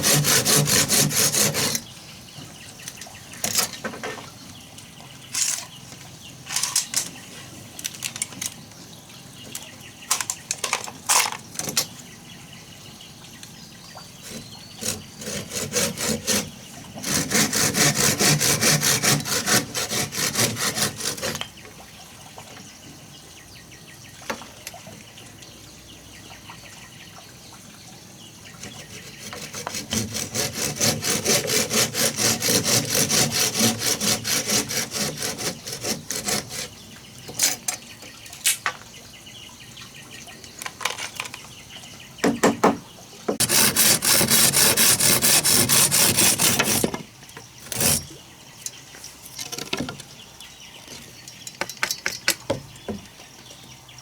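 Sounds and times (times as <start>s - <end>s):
hand saw cutting wood: 0.0s - 1.9s, 14.2s - 21.5s, 28.6s - 37.7s, 43.3s - 48.2s
knocks: 42.2s - 43.4s.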